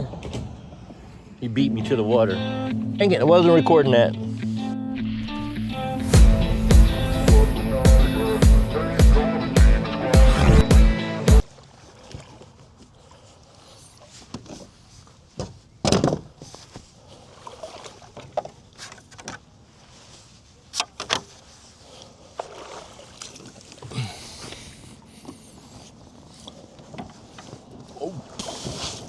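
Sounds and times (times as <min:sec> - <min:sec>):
knocks and clunks on a kayak: 0:14.3 - 0:19.5.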